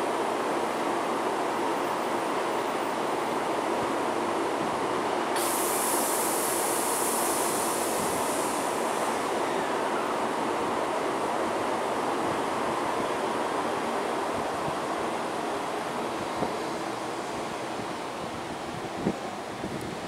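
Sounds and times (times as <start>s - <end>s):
train rushing hum: 0.0s - 20.0s
high hiss of air: 5.3s - 10.2s.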